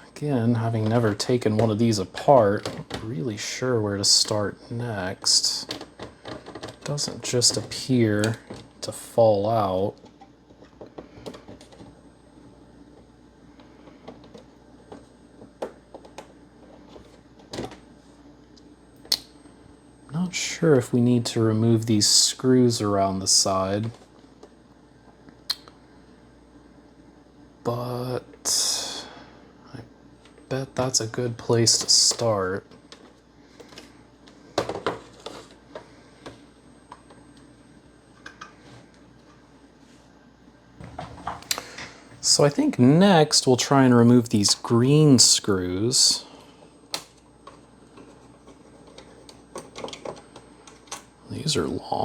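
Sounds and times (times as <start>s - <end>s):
game console being handled: 5.6s - 8.8s, 10.0s - 12.0s, 13.6s - 17.9s, 31.5s - 37.3s, 40.8s - 42.0s.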